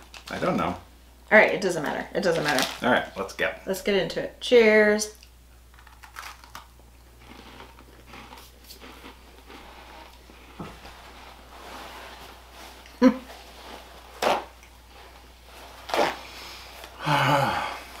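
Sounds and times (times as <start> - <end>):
people chewing crunchy biscuits: 5.7 - 11.1
paper towel tearing: 13.5 - 16.9
low mm vocal sound: 17.0 - 18.0.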